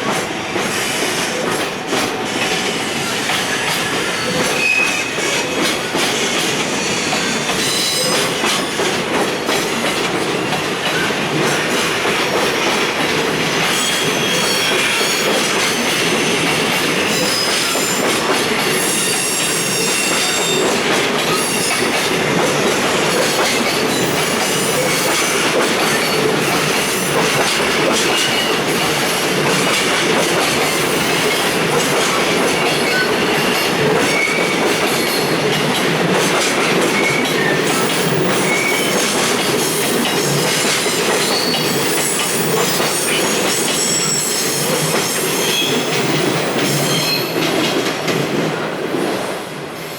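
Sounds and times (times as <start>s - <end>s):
freight train rumbling past: 0.0s - 49.9s
high wheel squeals: 13.7s - 20.7s, 39.8s - 47.4s.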